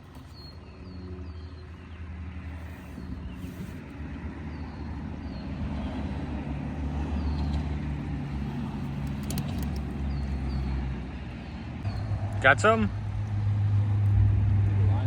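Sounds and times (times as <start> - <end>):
engine humming: 2.2 - 15.0
birds chirping: 7.2 - 12.2.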